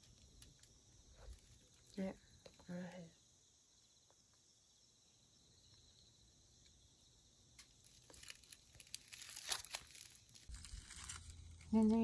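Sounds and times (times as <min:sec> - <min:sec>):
crinkly rustling with crackles: 0:00.0 - 0:02.0, 0:07.6 - 0:12.0
insects chirring: 0:00.0 - 0:12.0.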